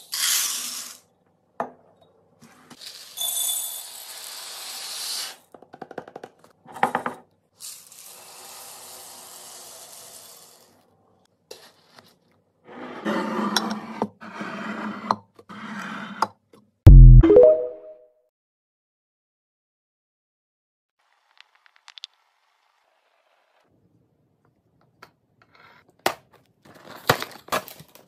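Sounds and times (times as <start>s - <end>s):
short rising tone: 16.9s - 17.9s.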